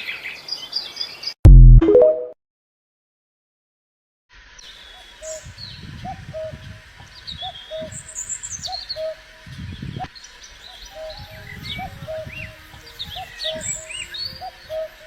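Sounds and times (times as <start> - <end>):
high bird chirps and trills: 7.2 - 15.0.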